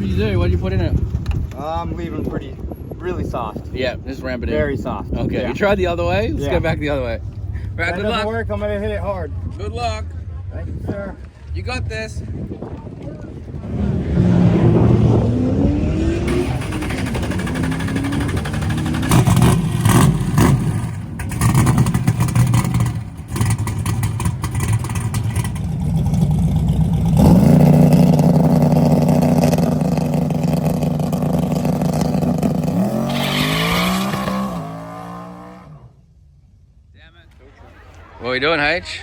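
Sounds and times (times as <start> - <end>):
drag car engine revving: 13.5 - 36.0.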